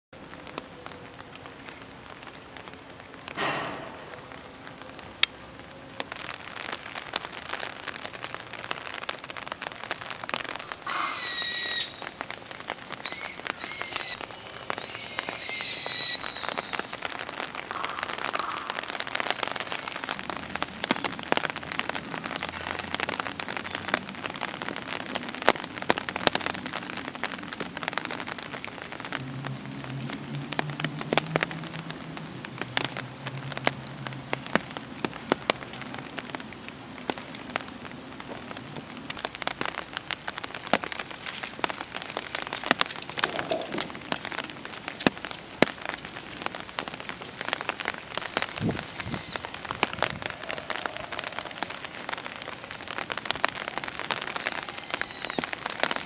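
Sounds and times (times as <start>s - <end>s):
rain falling: 0.1s - 56.0s
raindrops ticking on surfaces: 0.1s - 56.0s
short high-pitched calls: 10.8s - 12.1s, 13.0s - 17.0s.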